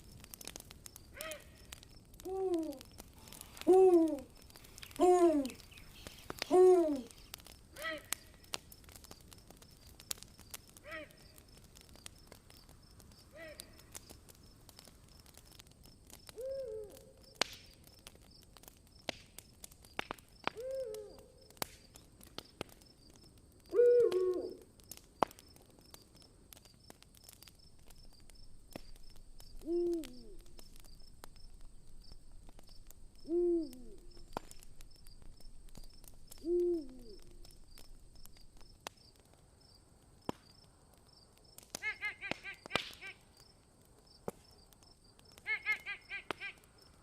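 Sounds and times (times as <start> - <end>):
campfire crackling: 0.0 - 47.0
owl hooting: 1.2 - 1.5, 3.6 - 4.3, 4.9 - 7.1, 16.4 - 17.0, 20.6 - 21.2, 23.7 - 24.6, 29.6 - 30.4, 33.2 - 34.0, 36.4 - 37.4.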